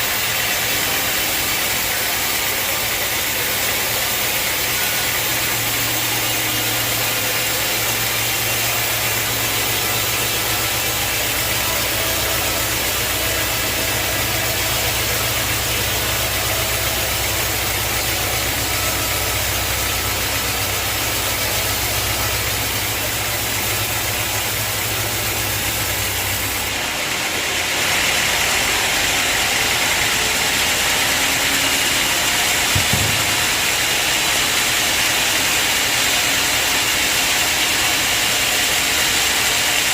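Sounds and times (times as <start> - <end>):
mechanical noise: 3.9 - 34.8.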